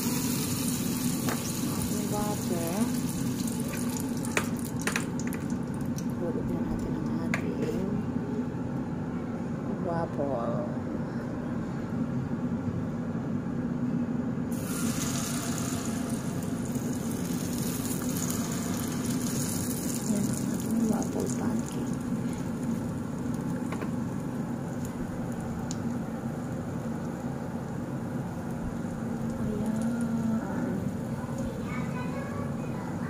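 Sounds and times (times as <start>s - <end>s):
batter sizzling in a pan: 0.0s - 6.1s, 14.5s - 32.0s.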